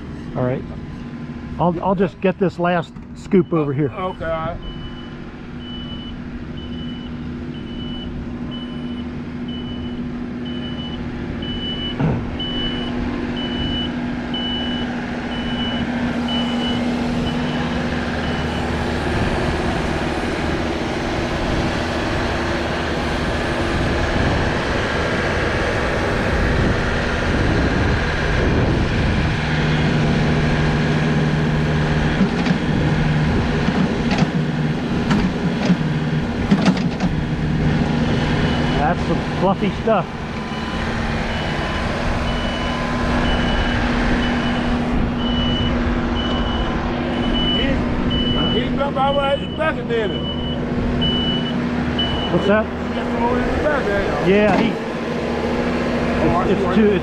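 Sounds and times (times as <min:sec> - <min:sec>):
loader engine running under load: 0:00.0 - 0:57.0
reversing alarm beeping: 0:03.2 - 0:18.8, 0:38.0 - 0:39.0, 0:40.4 - 0:52.7.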